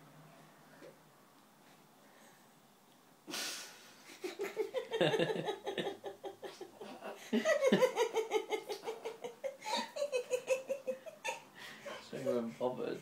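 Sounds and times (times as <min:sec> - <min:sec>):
person laughing: 0:03.3 - 0:11.5.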